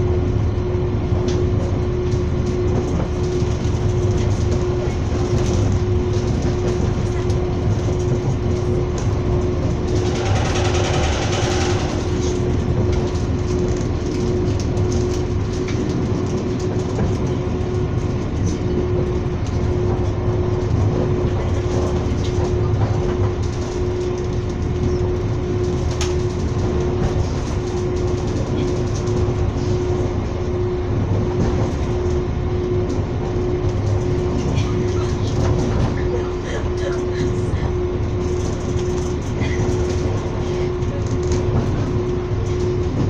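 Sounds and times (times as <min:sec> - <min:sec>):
train wheels rumbling on rails: 0:00.0 - 0:43.0
steady hum: 0:09.4 - 0:14.4.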